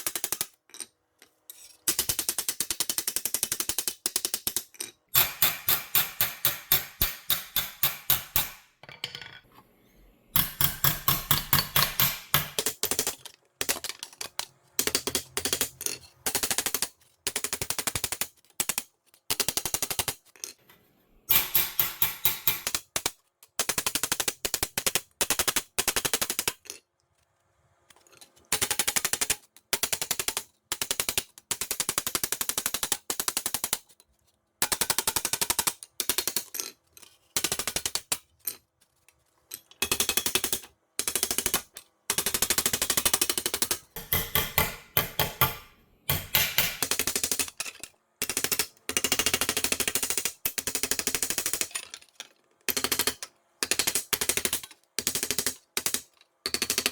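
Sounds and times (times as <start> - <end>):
tool rattling rapid impacts: 39.8 - 50.0.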